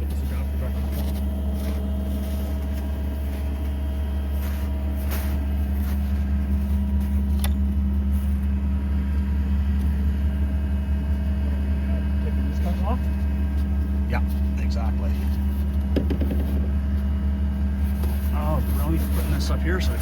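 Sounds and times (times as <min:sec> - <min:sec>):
engine idling drone: 0:00.0 - 0:20.0.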